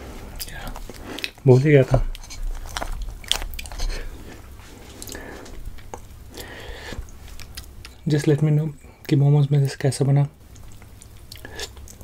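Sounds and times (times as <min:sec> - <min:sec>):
person biting and chewing: 0:02.1 - 0:08.0.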